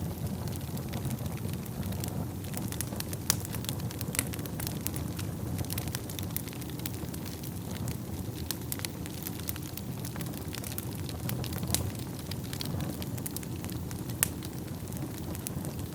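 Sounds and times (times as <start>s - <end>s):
fire crackling and popping: 0.0s - 15.9s.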